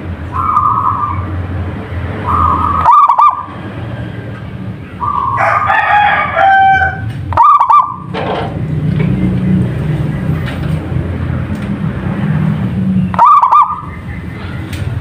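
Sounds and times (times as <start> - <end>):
dove cooing: 2.2 - 3.5, 5.0 - 8.1, 13.2 - 14.0.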